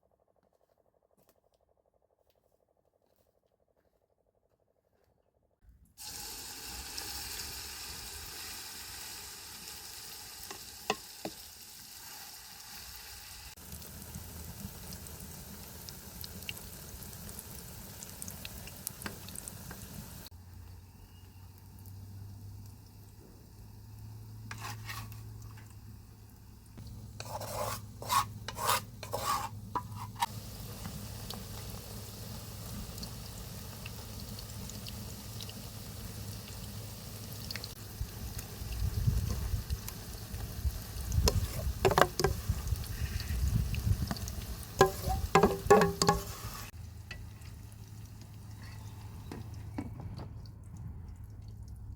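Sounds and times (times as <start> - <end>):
food sizzling in a pan: 6.0 - 47.6.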